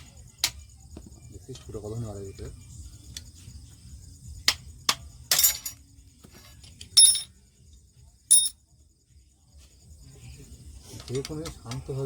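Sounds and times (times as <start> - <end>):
metal tools clinking: 5.3 - 5.8, 6.5 - 7.3, 8.3 - 8.6
metallic clank ringing: 8.3 - 8.6.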